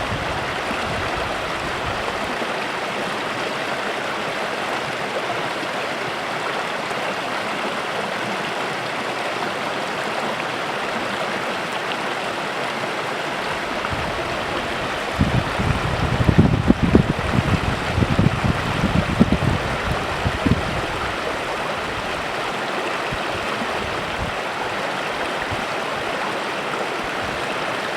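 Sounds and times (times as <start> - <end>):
wind buffeting microphone: 0.0 - 2.4, 13.5 - 27.8
stream babbling: 0.0 - 27.9.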